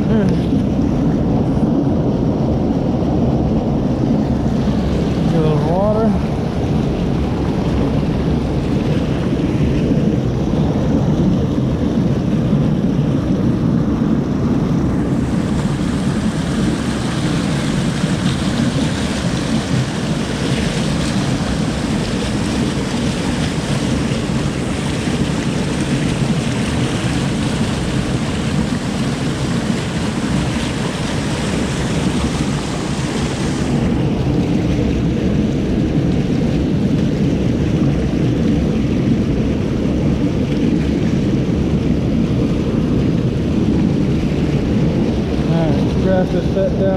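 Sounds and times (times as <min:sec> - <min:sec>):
creek water rushing: 0:00.0 - 0:46.9.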